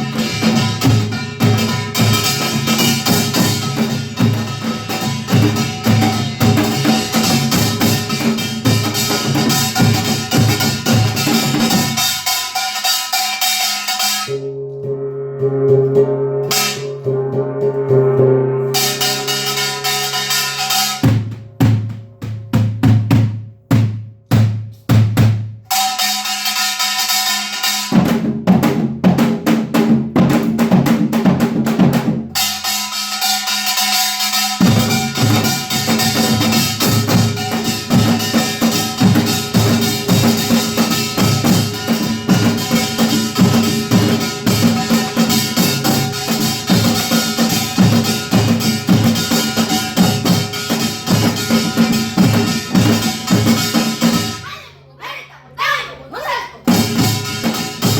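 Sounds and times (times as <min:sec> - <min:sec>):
metallic gong clanging: 0:00.0 - 0:23.2, 0:32.4 - 0:54.6
heavy drum strokes: 0:00.0 - 0:54.8, 0:56.6 - 0:57.9
percussion ensemble playing: 0:00.0 - 0:57.9
gong ringing: 0:14.0 - 0:22.8, 0:34.6 - 0:54.5.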